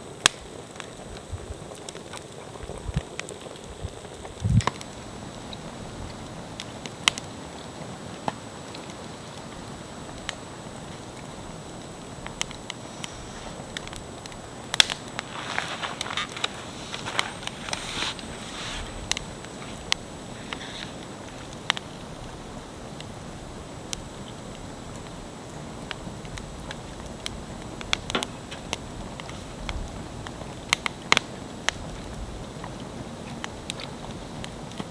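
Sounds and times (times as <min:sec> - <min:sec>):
campfire crackling and popping: 0:00.0 - 0:34.9
rustling: 0:12.5 - 0:21.1.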